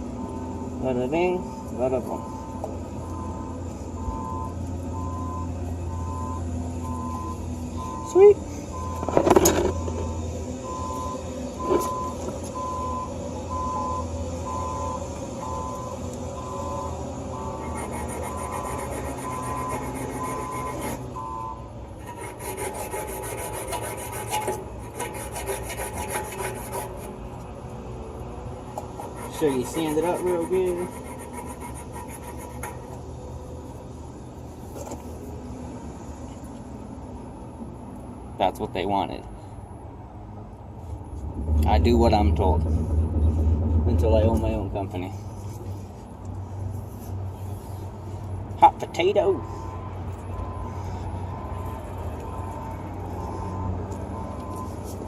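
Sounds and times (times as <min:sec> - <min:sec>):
low engine hum: 0:00.0 - 0:22.2, 0:39.3 - 0:55.0
backup alarm beeping: 0:01.4 - 0:21.6
sanding metal tubing: 0:17.6 - 0:21.1, 0:22.0 - 0:27.2, 0:29.0 - 0:32.9.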